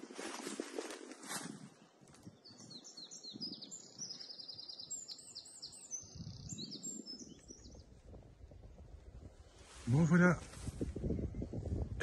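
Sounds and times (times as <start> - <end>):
songbird singing: 1.6 - 8.8.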